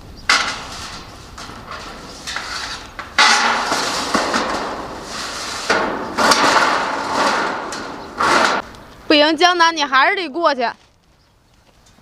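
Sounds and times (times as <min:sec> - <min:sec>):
metal roofing sheet rattling: 0:00.3 - 0:08.6.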